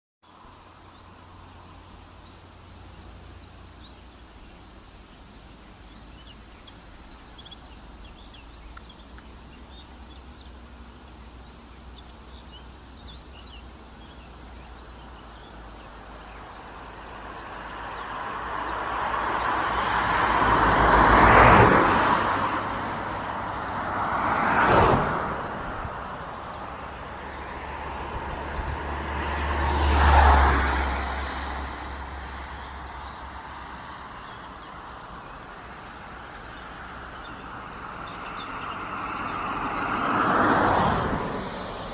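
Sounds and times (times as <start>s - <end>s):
faint bird or insect chirps: 0.2s - 20.4s, 29.9s - 39.5s
road vehicles passing by: 0.2s - 41.9s.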